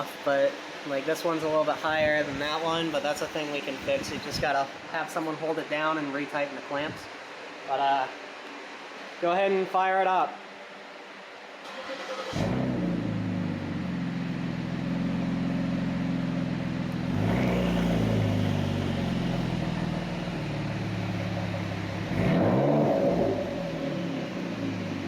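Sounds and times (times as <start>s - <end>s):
car engine starting and idling: 11.6s - 25.0s
car engine revving: 11.7s - 25.0s.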